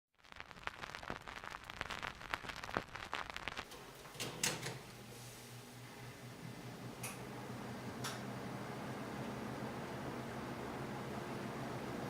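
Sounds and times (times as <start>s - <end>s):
sharp clicks and crackles: 0.2s - 3.8s
box fan motor hum: 5.8s - 12.0s.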